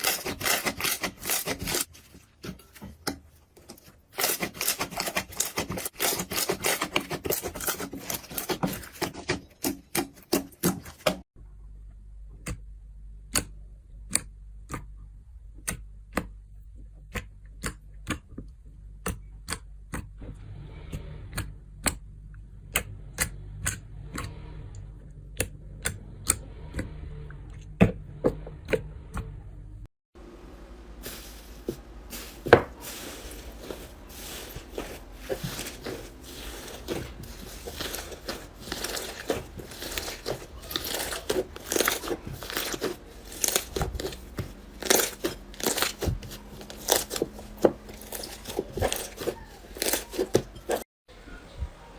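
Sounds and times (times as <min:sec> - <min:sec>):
low steady hum: 0:21.5 - 0:49.6.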